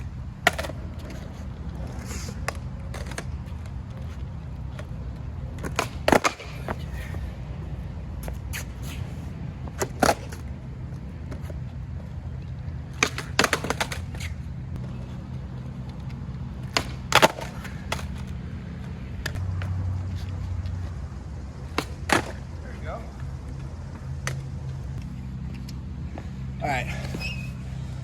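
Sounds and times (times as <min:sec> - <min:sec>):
steady low rumble: 0:00.0 - 0:28.0
skateboard pops and clacks: 0:00.4 - 0:01.2, 0:05.6 - 0:06.8, 0:09.8 - 0:10.5, 0:12.9 - 0:14.4, 0:16.6 - 0:18.4, 0:21.7 - 0:22.4.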